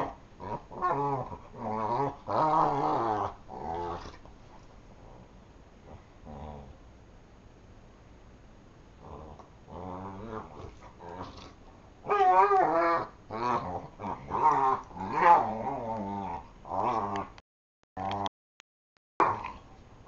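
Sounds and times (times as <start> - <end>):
dogs growling at play: 0.0 - 6.8, 9.0 - 17.4.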